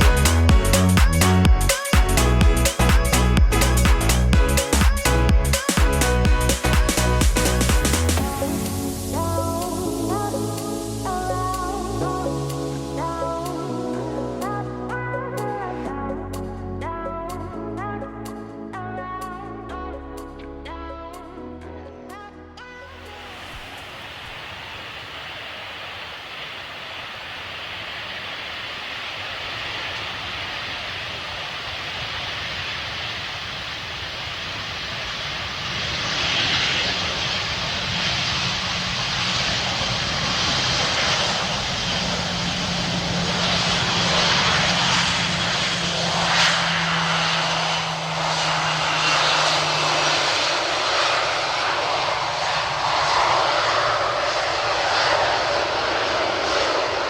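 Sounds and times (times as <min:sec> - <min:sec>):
faint whine falling in pitch: 0:00.0 - 0:16.1, 0:34.4 - 0:57.0
airliner engines passing overhead: 0:00.0 - 0:57.0.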